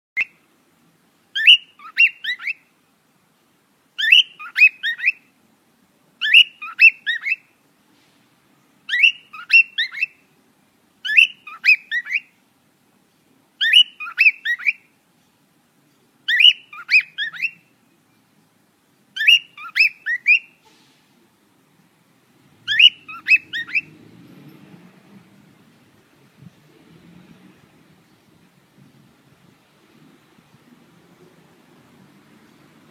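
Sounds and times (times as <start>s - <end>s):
bird singing chirps: 1.4s - 2.7s, 4.0s - 5.3s, 6.2s - 7.5s, 8.9s - 10.2s, 11.0s - 12.3s, 13.6s - 14.9s, 15.9s - 18.3s, 19.2s - 20.6s, 22.6s - 25.2s.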